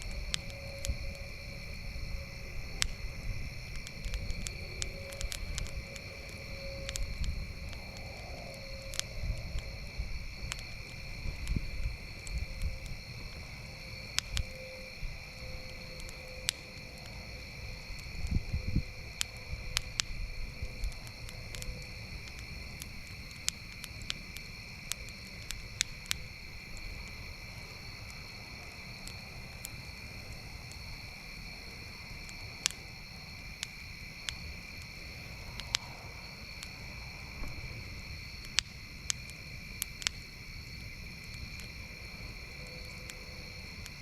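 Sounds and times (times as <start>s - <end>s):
campfire crackling and popping: 0.0s - 44.0s
high-pitched insect chorus: 0.0s - 44.0s.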